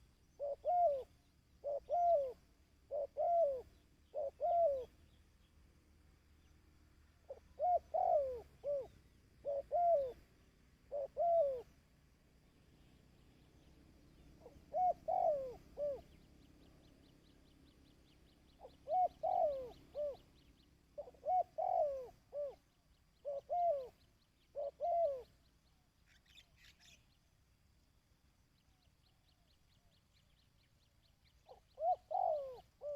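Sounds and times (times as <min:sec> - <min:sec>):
dove cooing: 0:00.0 - 0:05.1, 0:07.3 - 0:11.9, 0:14.1 - 0:16.3, 0:18.3 - 0:25.4, 0:31.4 - 0:32.9.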